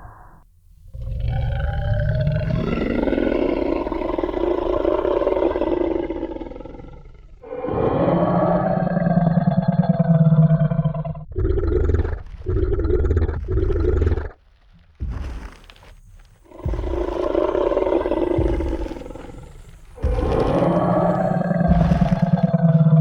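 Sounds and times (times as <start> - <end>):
dinosaur growling and roaring: 0.0 - 23.0.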